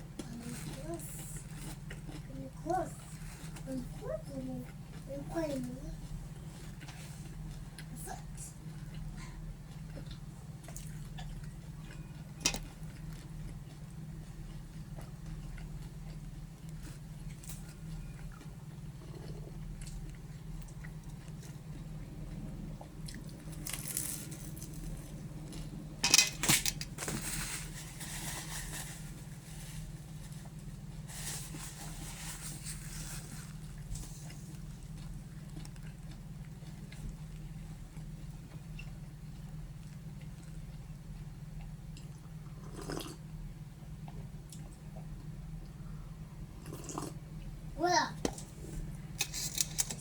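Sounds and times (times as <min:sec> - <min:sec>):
steady low hum: 0:00.0 - 0:50.0
crunchy food chewing: 0:08.6 - 0:25.8, 0:29.0 - 0:43.3.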